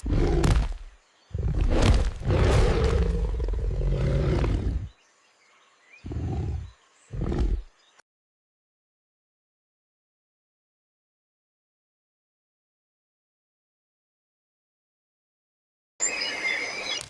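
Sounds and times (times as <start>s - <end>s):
big cat growls: 0.0s - 5.0s, 6.0s - 7.7s
big cat roaring: 0.0s - 5.0s, 6.0s - 7.7s.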